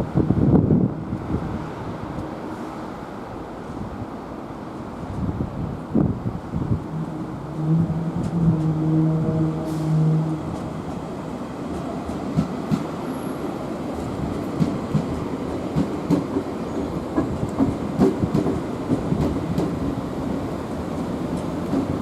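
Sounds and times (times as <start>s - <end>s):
electric train rumble: 0.0s - 22.0s
wheels clacking over rail joints: 7.0s - 22.0s.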